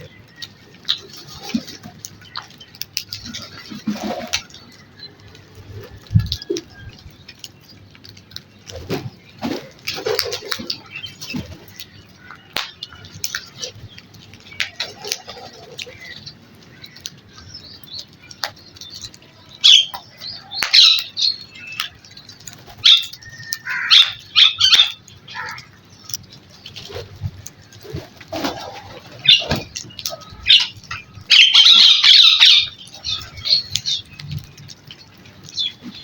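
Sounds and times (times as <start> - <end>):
wings flapping: 0.8 - 11.9, 12.5 - 16.6, 25.4 - 31.8
harsh crow calls: 23.5 - 25.8.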